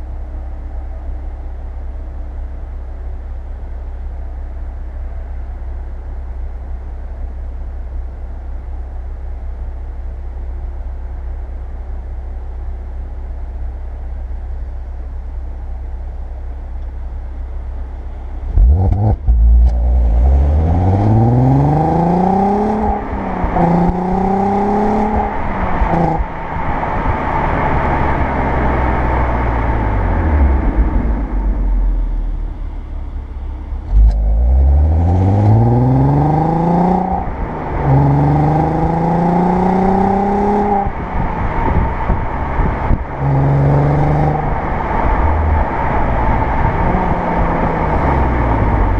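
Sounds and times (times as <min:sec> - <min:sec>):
car engine accelerating: 0:16.8 - 0:48.9.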